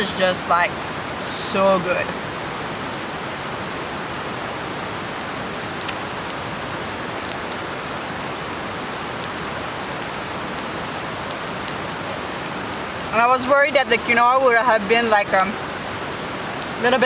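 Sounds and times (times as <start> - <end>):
river rushing: 0.0 - 17.0
faint ticks: 4.7 - 6.5, 7.2 - 7.6, 9.0 - 12.9.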